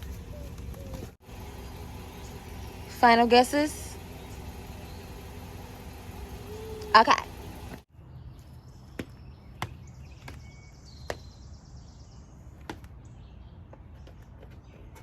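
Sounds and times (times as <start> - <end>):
steady low rumble: 0.0 - 7.9.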